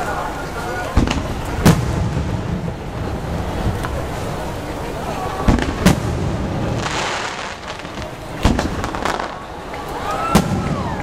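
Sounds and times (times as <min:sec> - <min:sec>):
firework shells bursting: 0:05.5 - 0:09.5.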